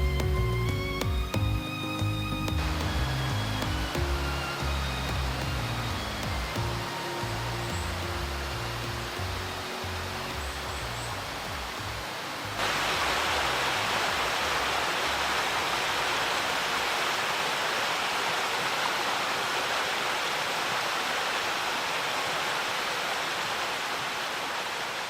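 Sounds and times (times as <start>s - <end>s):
background music: 0.0s - 15.8s
stream water rushing: 0.0s - 25.0s.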